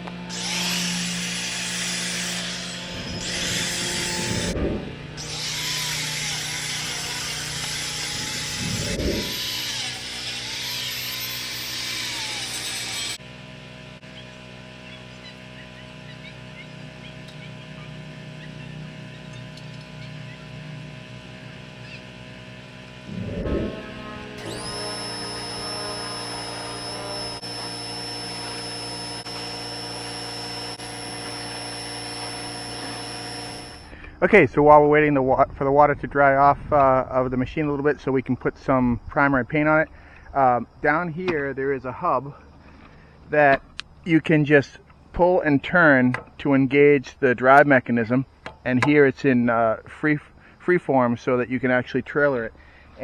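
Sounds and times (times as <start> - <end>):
power tool hissing and whining: 0.0 - 34.1.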